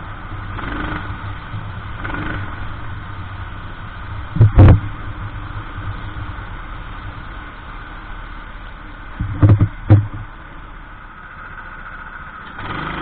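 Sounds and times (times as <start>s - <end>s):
kart engine idling: 0.0s - 13.0s
loud knocks: 9.2s - 10.2s.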